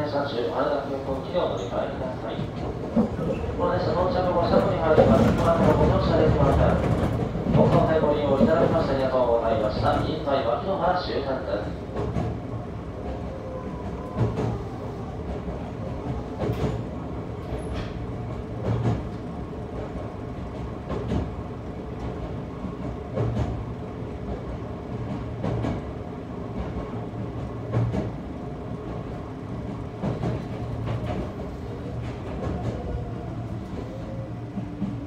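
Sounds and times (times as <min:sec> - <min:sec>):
train rumbling from inside: 0:00.0 - 0:35.0
train wheel clacks: 0:04.5 - 0:09.0, 0:11.8 - 0:13.2, 0:13.8 - 0:21.4, 0:22.0 - 0:25.9, 0:26.5 - 0:28.2, 0:28.8 - 0:33.1.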